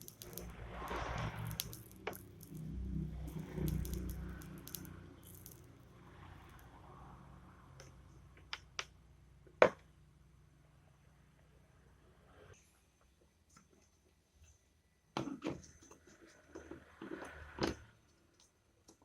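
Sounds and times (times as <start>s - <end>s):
sharp clicks: 0.0s - 5.7s
small parts rustling and rattling: 0.0s - 6.6s.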